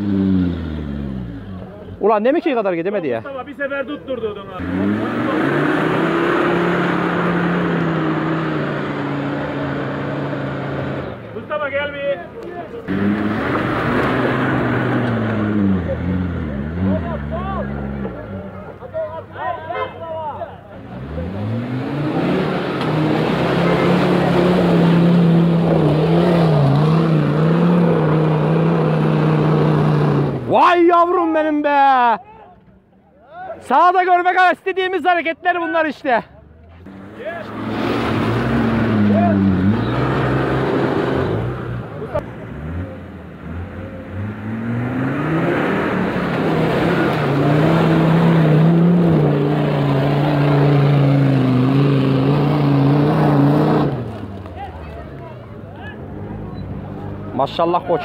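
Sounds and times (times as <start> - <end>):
engine at high revs: 0.0 - 1.6, 4.5 - 11.2, 12.8 - 18.4, 20.8 - 30.5, 36.8 - 54.6.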